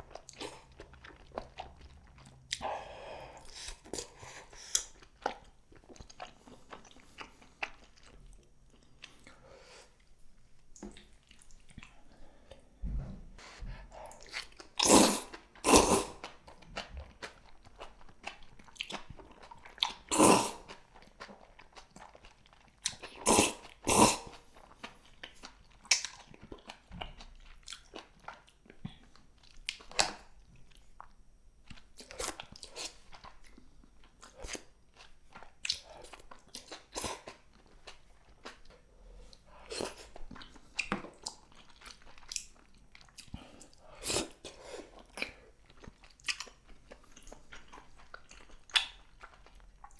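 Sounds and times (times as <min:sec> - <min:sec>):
close chewing and biting: 0:00.0 - 0:10.0, 0:13.4 - 0:49.9
slurping or crunching: 0:14.4 - 0:16.3, 0:20.1 - 0:20.7, 0:23.1 - 0:24.4.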